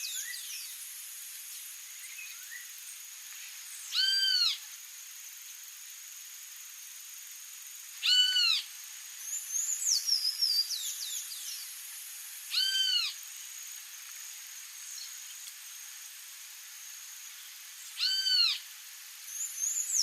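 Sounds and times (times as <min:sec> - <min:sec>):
clear arched bird call: 0:18.0 - 0:18.6.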